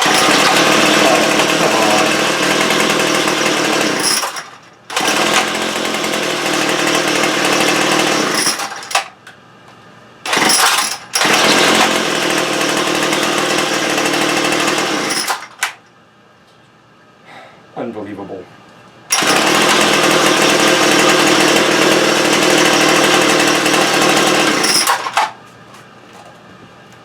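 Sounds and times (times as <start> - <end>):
small two-stroke engine running: 0.0 - 8.9, 10.3 - 15.4, 19.1 - 25.3.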